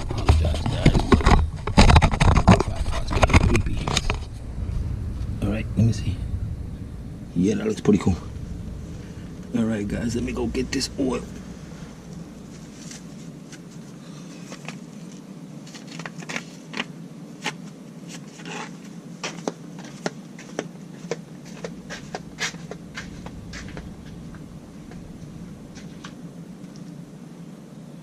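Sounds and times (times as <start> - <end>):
low hum: 0.0 - 15.6, 21.3 - 27.7.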